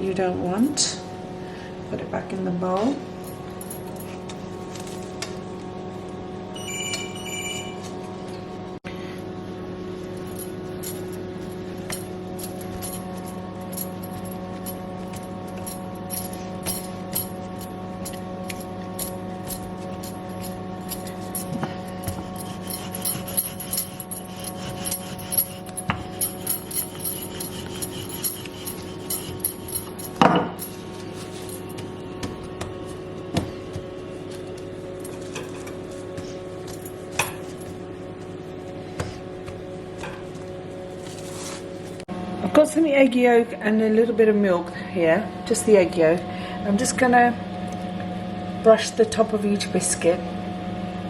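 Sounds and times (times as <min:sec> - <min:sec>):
short two-tone beep: 0:06.6 - 0:07.8
steady hum: 0:07.1 - 0:42.5.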